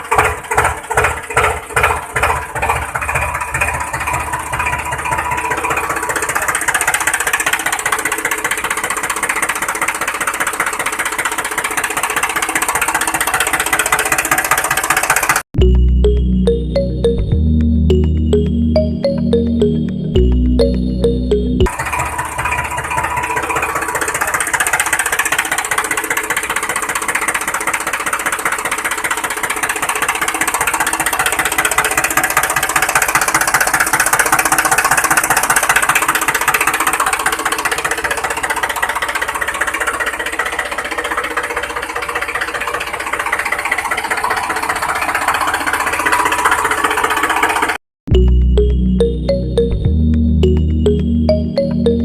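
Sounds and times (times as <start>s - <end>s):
tractor engine with rattling knock: 0.0s - 15.5s, 21.7s - 47.8s.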